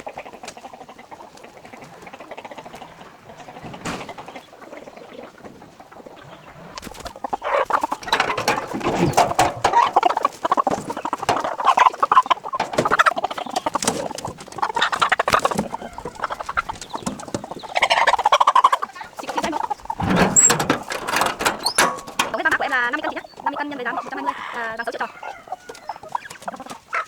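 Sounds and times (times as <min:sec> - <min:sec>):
chickens clucking and squawking: 0:00.0 - 0:27.0
sharp clicks and knocks: 0:07.8 - 0:12.0, 0:12.6 - 0:17.7, 0:19.4 - 0:22.7.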